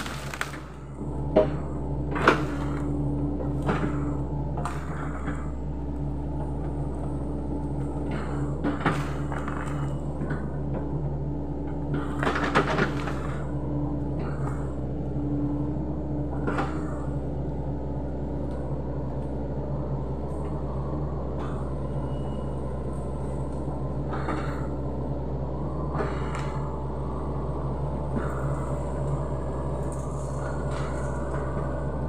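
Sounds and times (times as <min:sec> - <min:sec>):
sharp cracks and knocks: 0:00.0 - 0:00.8
excavator diesel engine running: 0:00.0 - 0:32.0.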